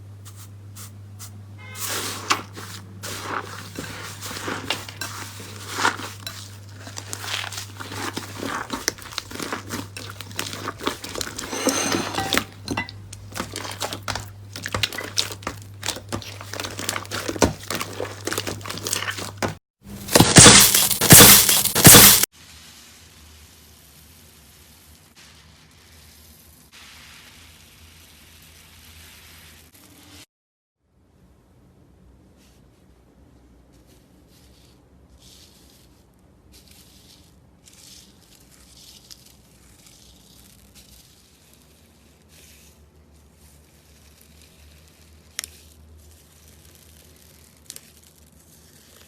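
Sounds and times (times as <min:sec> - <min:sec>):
faint hiss: 0:22.4 - 0:30.2.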